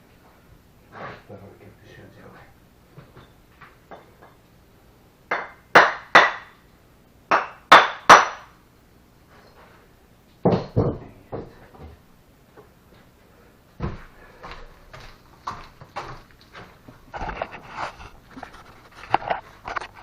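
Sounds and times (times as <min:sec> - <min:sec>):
tool striking brick: 0:05.3 - 0:06.5, 0:07.3 - 0:08.5.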